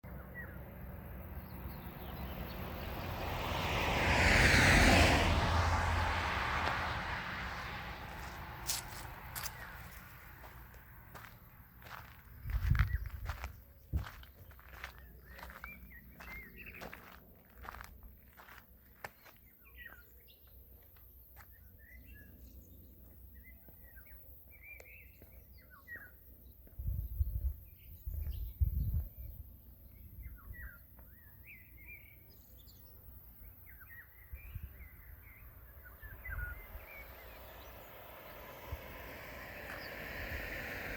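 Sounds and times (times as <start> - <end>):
songbirds chirping: 0.0 - 3.9, 5.5 - 40.9
vehicle passing by: 0.2 - 18.6, 33.8 - 40.9
footsteps: 6.6 - 19.4.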